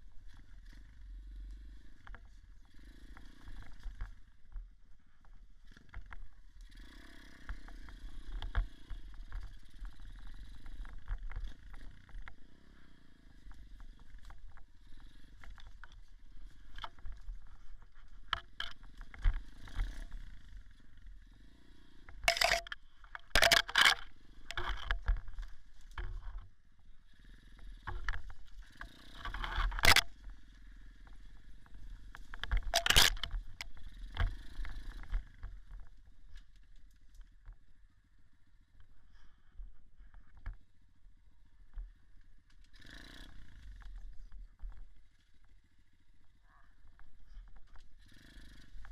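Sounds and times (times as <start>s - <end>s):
dirt bike engine: 0.0s - 48.9s
knocks and rattles: 22.2s - 26.4s, 27.9s - 30.4s, 31.8s - 35.8s.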